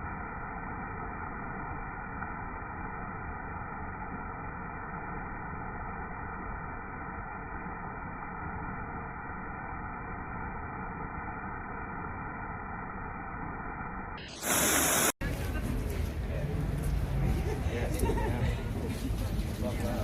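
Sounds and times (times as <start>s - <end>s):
loud burst of hiss: 14.2s - 15.2s.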